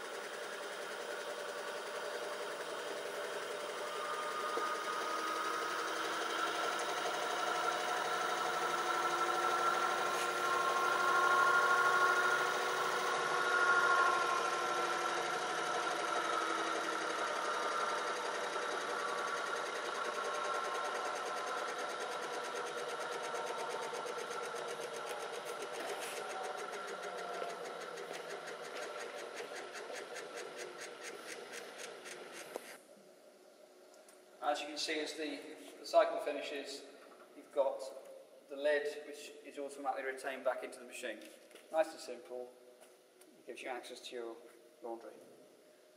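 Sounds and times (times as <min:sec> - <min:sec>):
washing machine drum spinning: 0:00.2 - 0:30.3.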